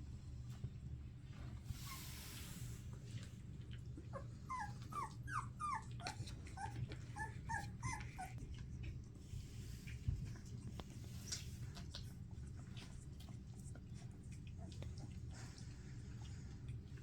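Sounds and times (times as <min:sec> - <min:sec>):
puppies whimpering: 0:04.1 - 0:08.4.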